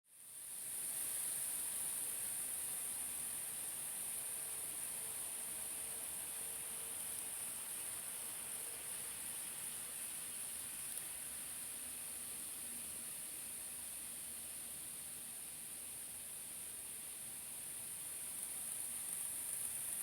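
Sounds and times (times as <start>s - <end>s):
model train high-pitched hiss: 0.2s - 20.0s.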